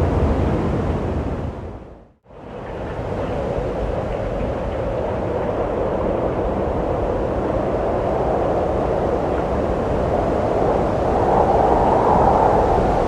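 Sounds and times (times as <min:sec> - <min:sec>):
wind blowing: 0:00.0 - 0:13.0.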